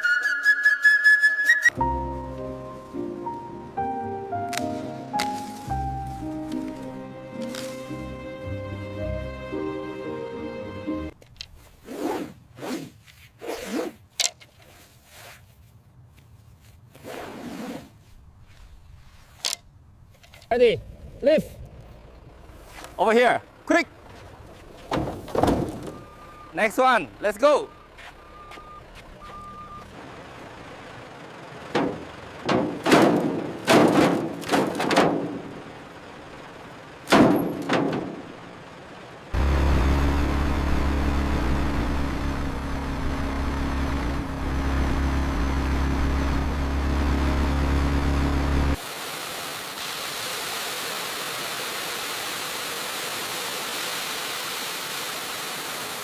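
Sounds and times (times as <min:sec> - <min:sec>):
short scraping strokes: 0:11.6 - 0:15.7.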